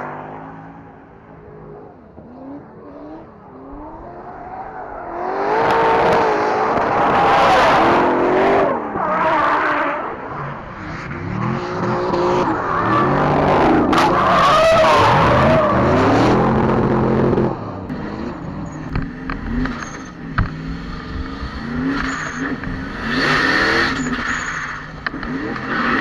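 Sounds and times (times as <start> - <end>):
car engine revving: 0.0 - 26.0
tyres screeching: 21.6 - 26.0.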